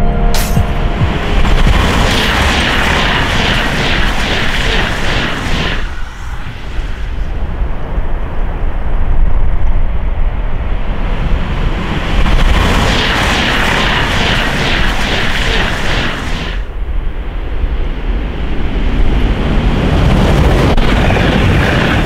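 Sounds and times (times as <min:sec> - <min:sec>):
train rushing past: 0:00.6 - 0:08.3, 0:18.8 - 0:22.0.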